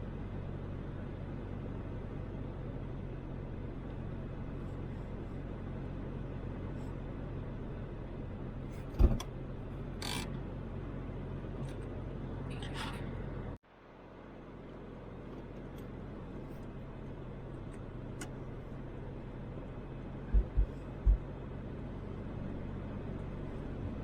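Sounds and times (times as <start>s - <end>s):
car engine and road noise: 0.0s - 24.0s
sharp thump: 8.9s - 9.2s.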